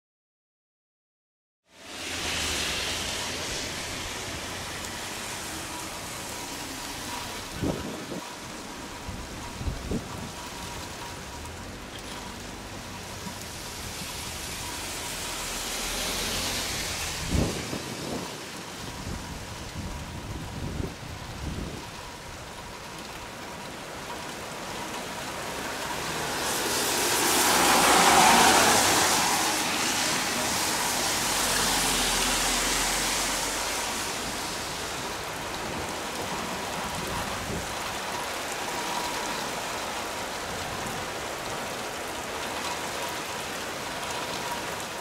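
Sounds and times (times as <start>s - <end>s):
heavy rain pouring: 1.6s - 45.0s.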